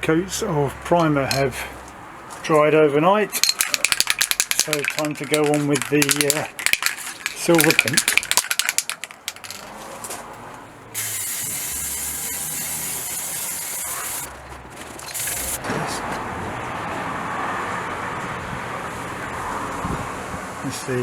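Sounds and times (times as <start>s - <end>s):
spray can hissing: 11.0s - 14.3s, 15.0s - 15.6s.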